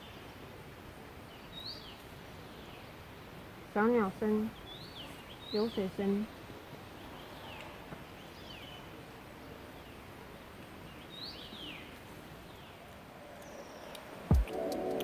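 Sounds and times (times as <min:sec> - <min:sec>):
birds chirping: 0:03.8 - 0:06.3
loud thump: 0:14.3 - 0:14.6
music: 0:14.3 - 0:15.0.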